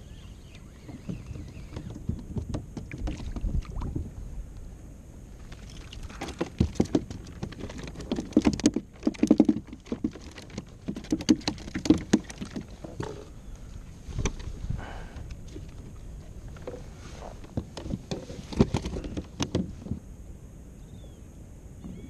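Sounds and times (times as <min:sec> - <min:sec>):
knocks and taps on kayak hull: 0:00.9 - 0:04.1, 0:06.1 - 0:13.3, 0:17.4 - 0:20.0.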